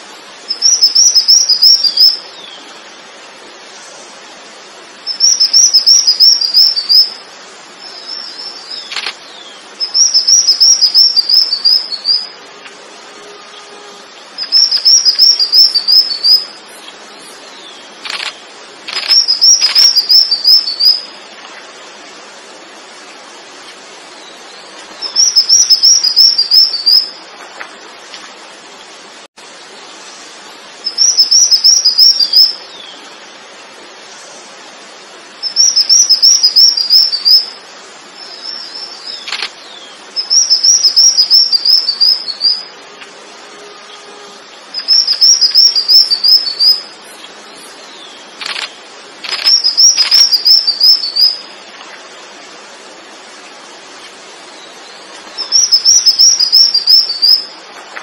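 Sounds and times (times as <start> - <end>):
sweeping bird calls: 0.0 - 2.7, 5.0 - 12.4, 13.1 - 21.2, 24.1 - 27.3, 30.8 - 33.1, 35.4 - 42.7, 43.6 - 51.7, 54.0 - 57.6.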